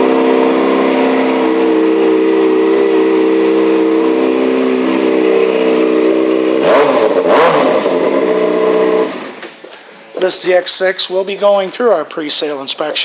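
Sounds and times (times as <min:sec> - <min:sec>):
motorcycle engine idling and revving: 0:00.0 - 0:09.4.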